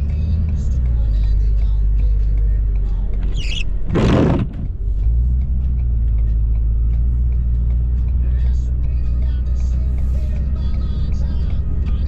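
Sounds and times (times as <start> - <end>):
diesel engine rumbling: 0.0 - 12.0
short squeak: 3.2 - 4.5.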